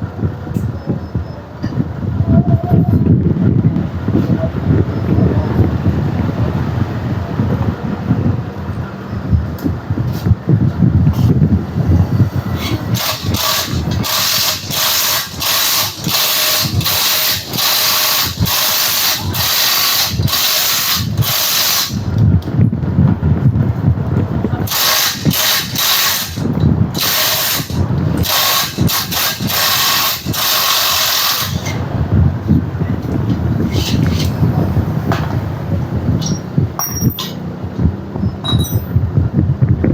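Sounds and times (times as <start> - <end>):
electric drill boring metal: 12.2 - 22.2, 24.7 - 31.9, 33.7 - 34.4.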